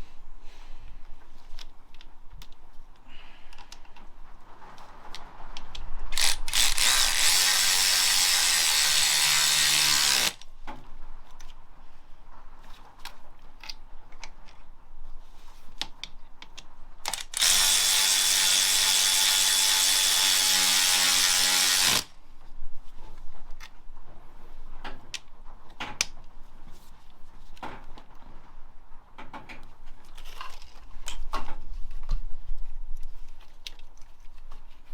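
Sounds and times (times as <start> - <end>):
small tool clicks: 5.6 - 10.5, 15.8 - 22.1
cordless power tool spinning: 6.2 - 10.5, 17.1 - 22.2.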